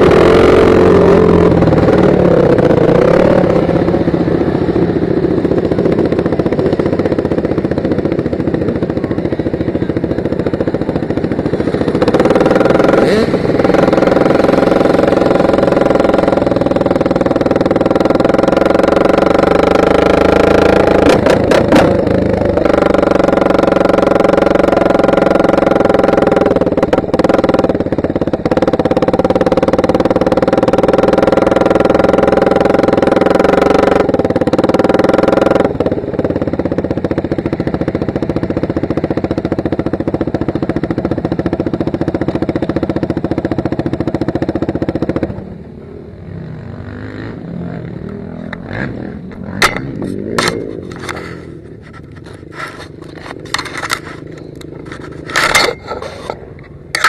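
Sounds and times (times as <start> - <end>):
motocross bike engine: 0.0 - 57.0
sharp knocks and scrapes: 49.5 - 57.0.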